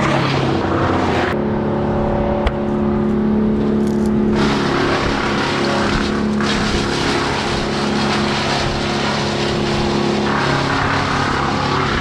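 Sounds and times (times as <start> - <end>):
chainsaw engine running: 3.7 - 8.2.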